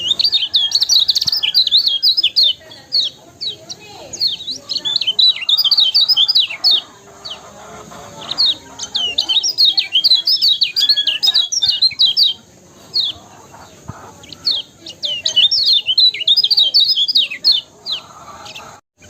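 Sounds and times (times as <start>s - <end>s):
bird chirping song: 0.0s - 19.0s.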